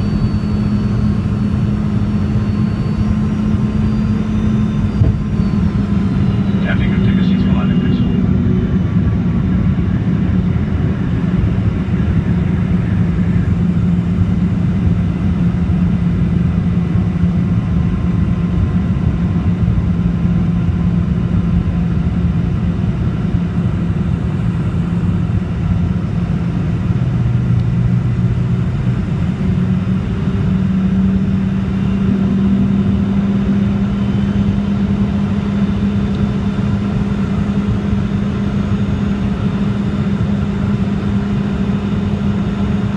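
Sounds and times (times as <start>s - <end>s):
jet engine cabin drone: 0.0s - 42.9s.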